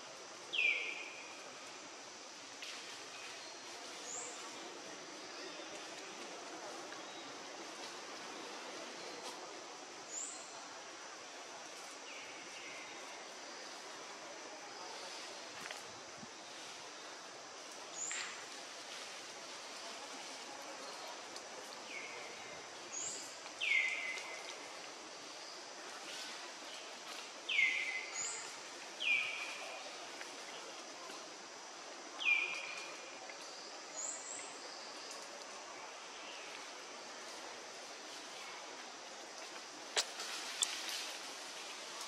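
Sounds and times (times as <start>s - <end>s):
outdoor background hiss: 0.0s - 42.0s.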